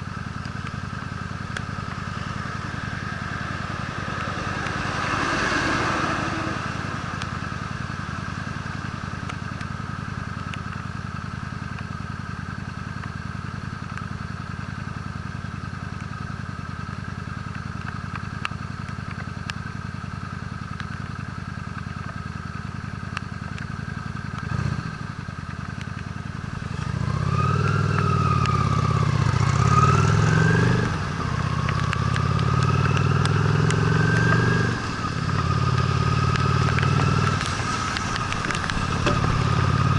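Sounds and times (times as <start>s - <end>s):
motorcycle engine revving: 0.0s - 15.5s, 23.4s - 39.9s.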